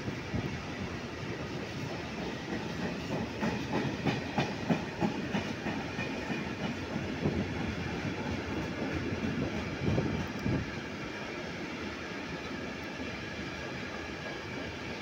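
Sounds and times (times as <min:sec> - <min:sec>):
freight train rumbling past: 0:00.0 - 0:15.0
steel wheels clacking on rails: 0:01.2 - 0:10.9, 0:13.6 - 0:15.0.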